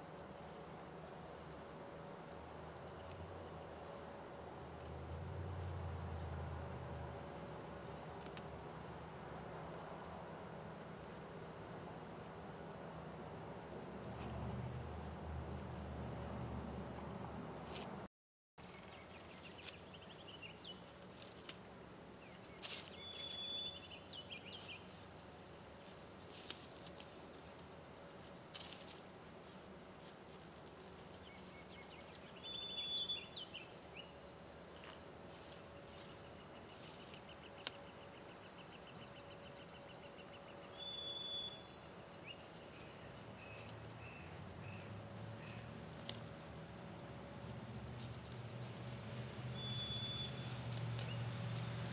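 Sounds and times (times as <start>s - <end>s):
songbird whistling: 23.0s - 26.4s, 32.4s - 36.1s, 40.7s - 44.8s, 49.5s - 51.9s.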